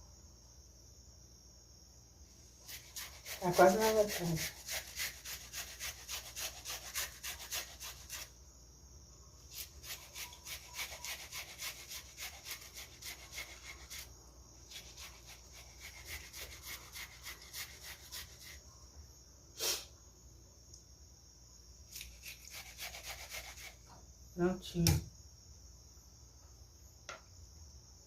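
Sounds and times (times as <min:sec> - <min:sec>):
food scraping on grater: 0:02.6 - 0:08.3, 0:09.5 - 0:14.1, 0:14.7 - 0:18.6, 0:22.0 - 0:23.8.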